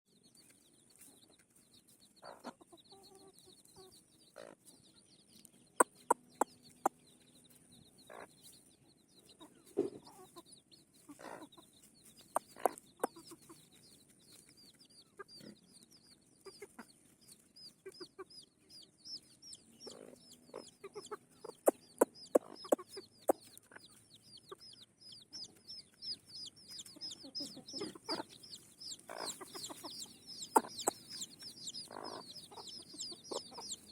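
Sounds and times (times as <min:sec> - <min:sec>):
chickens clucking: 0:00.1 - 0:33.9.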